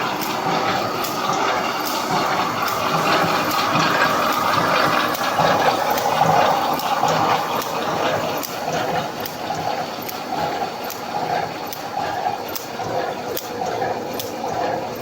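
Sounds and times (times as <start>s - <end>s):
sharp machine clicks: 0.0s - 15.0s.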